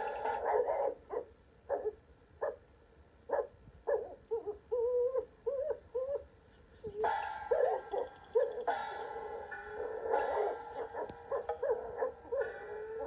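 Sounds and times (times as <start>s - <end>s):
dog woofing: 9.9s - 13.0s
dog howling: 10.3s - 13.0s.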